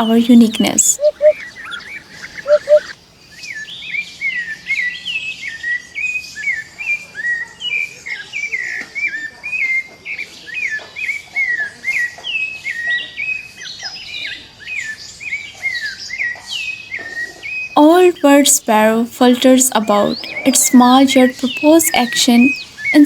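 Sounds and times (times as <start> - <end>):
small birds chirping: 0.0 - 3.7, 17.8 - 23.0.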